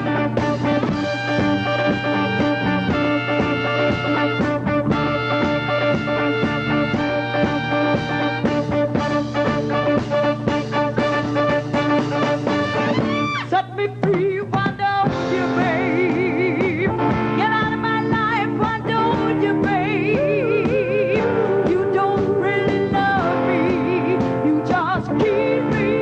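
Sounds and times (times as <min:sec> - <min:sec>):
rock band playing: 0:00.0 - 0:13.6, 0:14.6 - 0:26.0
person singing: 0:13.4 - 0:26.0.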